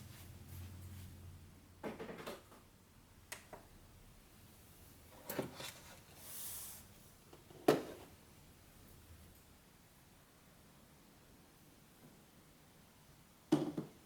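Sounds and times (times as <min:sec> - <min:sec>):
soft hiss: 0:03.2 - 0:13.5.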